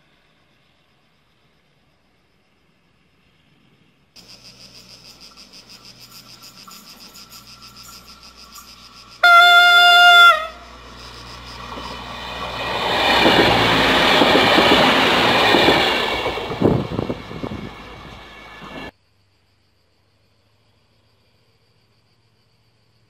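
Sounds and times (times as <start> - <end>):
train rumble and wheel clatter: 3.2 - 18.9
train horn blast: 9.2 - 10.8
train wheel clicks: 10.7 - 18.9.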